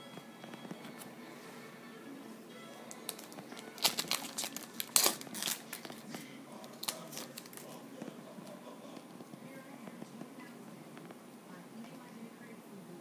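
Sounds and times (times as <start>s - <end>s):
wrapper crinkling and tearing: 2.9s - 7.8s.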